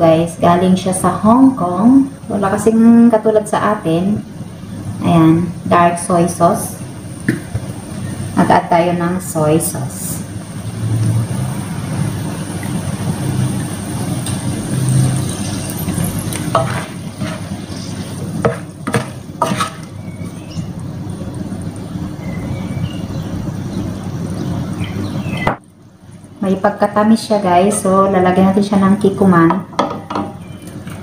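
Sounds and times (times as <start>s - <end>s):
food sizzling in a pan: 5.9s - 23.0s
spatula scraping and knocking: 15.9s - 19.9s.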